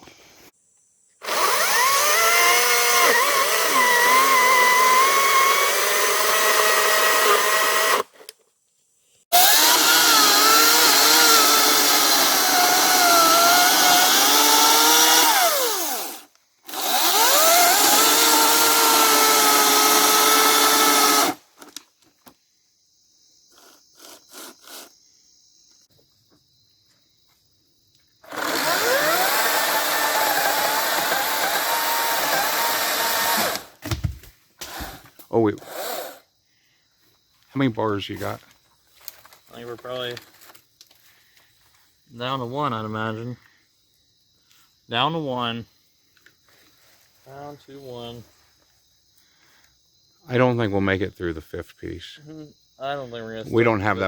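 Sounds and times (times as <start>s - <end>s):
battery chainsaw cutting log: 1.2s - 8.1s, 9.3s - 21.4s, 28.2s - 36.2s.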